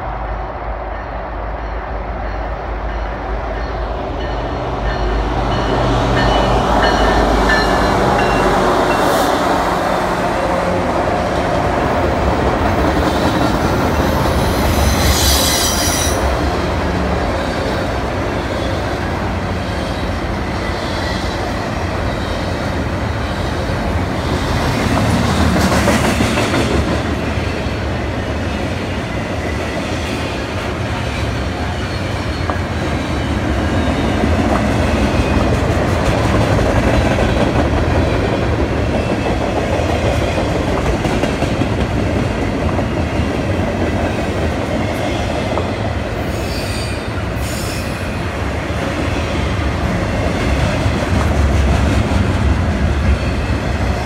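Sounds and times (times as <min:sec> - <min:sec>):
diesel locomotive engines: 0:00.0 - 0:54.0
high-pitched wheel squeals: 0:14.4 - 0:16.2.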